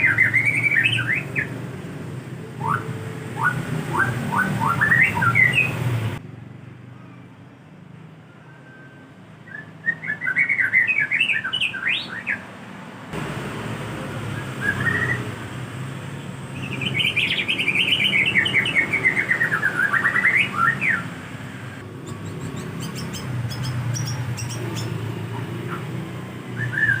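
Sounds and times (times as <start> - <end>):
bird singing whistled notes: 0.0 - 1.6, 2.6 - 5.9, 8.3 - 12.4, 14.2 - 15.4, 16.5 - 25.1, 26.5 - 27.0.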